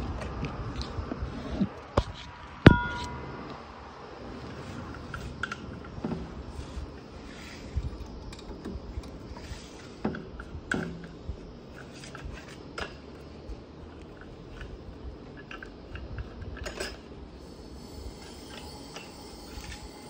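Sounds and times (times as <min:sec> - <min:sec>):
metal clink: 0:02.7 - 0:03.5.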